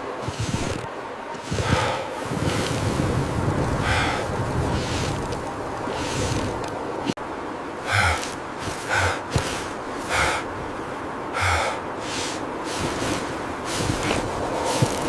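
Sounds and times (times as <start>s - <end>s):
steady hiss: 0.0s - 15.0s
loud gasping breaths: 1.4s - 2.8s, 3.7s - 5.3s, 5.9s - 6.6s, 7.8s - 15.0s.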